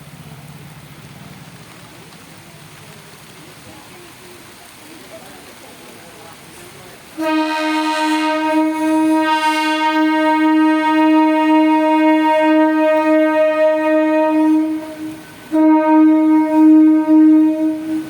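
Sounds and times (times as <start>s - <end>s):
train horn blast: 7.2s - 18.0s.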